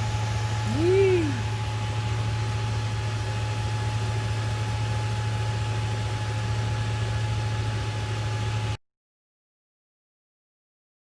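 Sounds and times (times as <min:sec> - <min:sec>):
low machine hum: 0:00.0 - 0:08.8.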